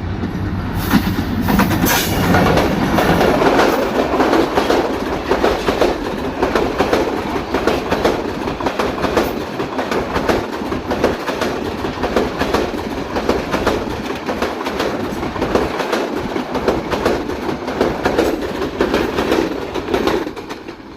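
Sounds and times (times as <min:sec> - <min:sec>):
train rumble: 0:00.0 - 0:20.9
train wheels clattering over rail joints: 0:00.2 - 0:20.9.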